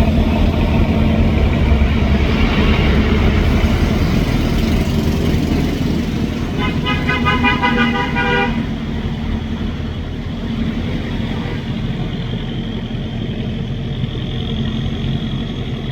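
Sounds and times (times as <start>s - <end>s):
boat engine running: 0.0s - 15.9s
horn short toots: 6.5s - 8.8s.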